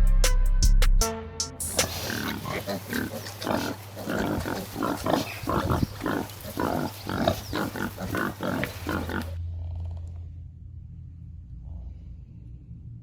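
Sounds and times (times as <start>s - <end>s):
farm animal short rough calls: 1.6s - 9.4s.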